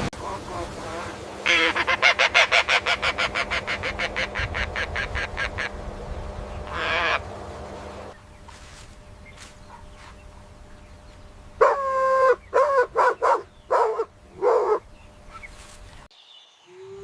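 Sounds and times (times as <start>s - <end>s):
animal calling: 1.4s - 5.8s, 6.6s - 7.3s.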